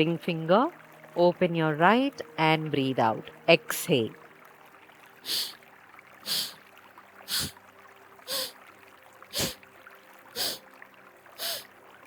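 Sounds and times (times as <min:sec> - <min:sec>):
forceful nasal exhalations: 0:05.3 - 0:05.6, 0:06.3 - 0:06.6, 0:07.3 - 0:07.6, 0:08.3 - 0:08.6, 0:09.3 - 0:09.6, 0:10.4 - 0:10.6, 0:11.4 - 0:11.7.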